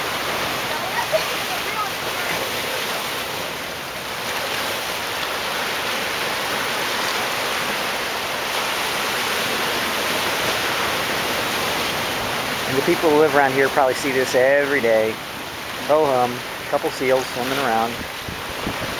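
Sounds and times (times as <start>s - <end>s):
surf washing against rocks: 0.0s - 18.9s.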